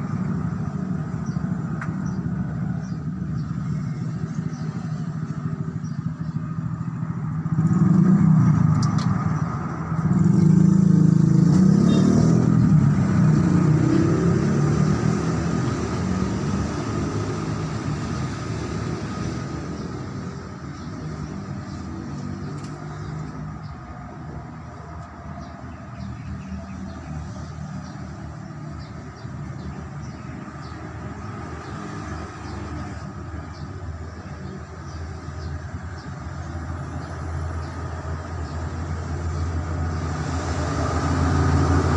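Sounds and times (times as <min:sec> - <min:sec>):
diesel truck engine revving: 0:07.2 - 0:22.5, 0:36.6 - 0:41.9.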